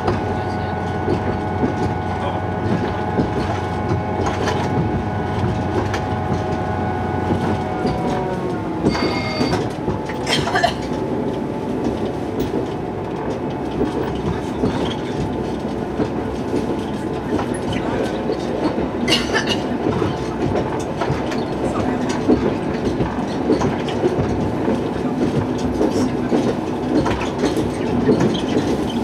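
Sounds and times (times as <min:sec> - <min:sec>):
diesel railcar engine hum: 0:00.0 - 0:29.0
wheels clattering over rails: 0:00.0 - 0:29.0
wheel squeals: 0:08.8 - 0:09.8, 0:27.7 - 0:29.0.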